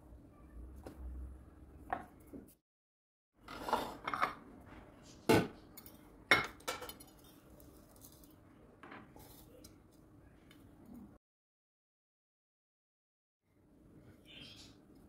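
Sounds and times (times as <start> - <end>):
dishes and utensils clattering: 3.4 - 4.4, 5.3 - 7.5.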